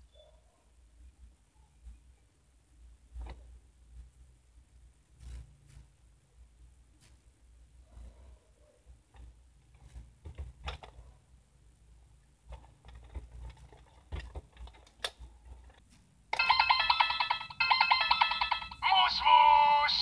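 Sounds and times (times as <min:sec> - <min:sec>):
plastic toy clicks and knocks: 0:10.3 - 0:11.0, 0:12.5 - 0:18.8
electronic ringtone trilling: 0:16.4 - 0:20.0.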